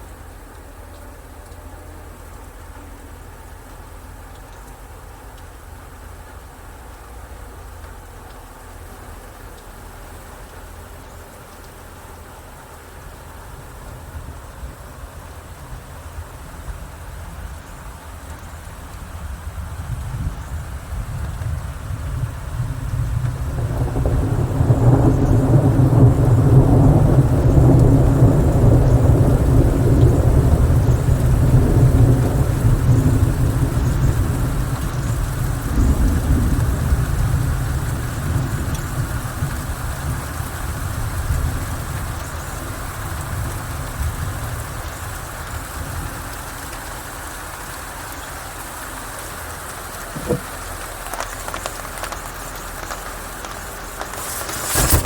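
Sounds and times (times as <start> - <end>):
rain falling on leaves: 0.0 - 55.0
rolling thunder: 18.6 - 46.5.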